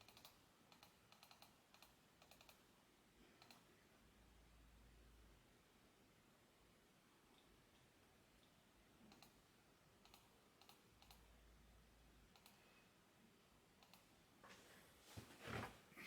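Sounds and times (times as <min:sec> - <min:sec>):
faint sharp clicks: 0:08.4 - 0:09.4, 0:10.0 - 0:11.3, 0:12.3 - 0:12.7, 0:13.8 - 0:14.1.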